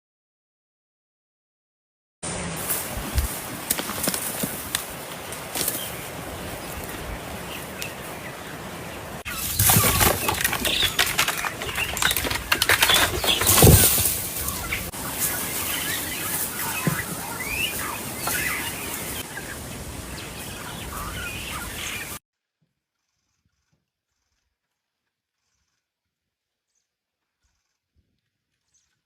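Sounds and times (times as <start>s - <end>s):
bird wings flapping: 2.5s - 7.0s, 9.3s - 19.2s.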